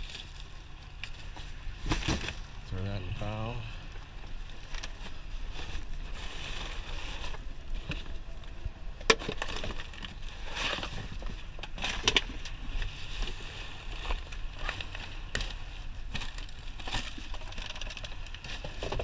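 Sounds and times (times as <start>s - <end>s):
low steady rumble: 0.0s - 19.0s
scrap rustling and scraping: 4.5s - 8.2s, 9.2s - 19.0s.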